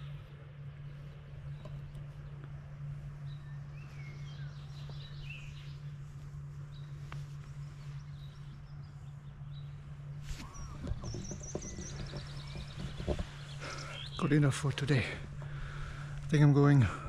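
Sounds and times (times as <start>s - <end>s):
small birds chirping: 0.0s - 17.0s
steady low hum: 0.0s - 17.0s.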